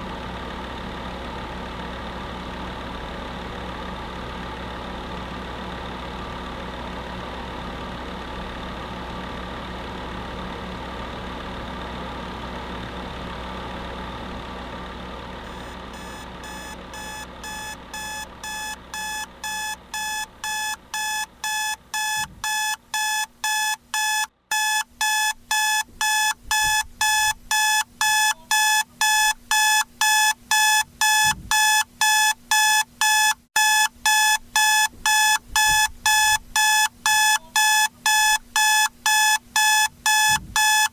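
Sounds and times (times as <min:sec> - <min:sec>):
space heater fan hum: 0:00.0 - 0:40.9
alarm clock beeping: 0:15.5 - 0:40.9.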